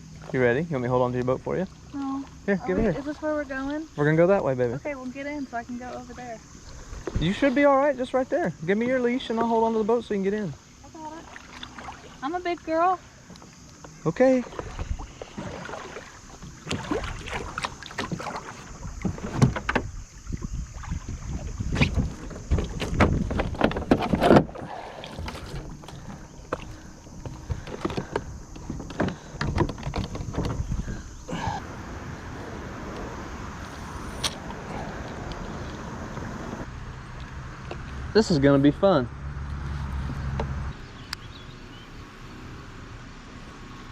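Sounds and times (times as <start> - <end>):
knocks and scrapes on kayak hull: 14.5 - 31.0
steady even noise: 31.3 - 36.7.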